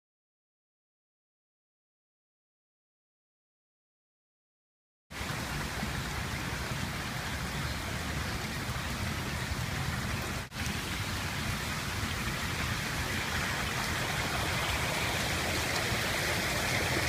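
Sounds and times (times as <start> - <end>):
floodwater rushing across ground: 5.1 - 17.0.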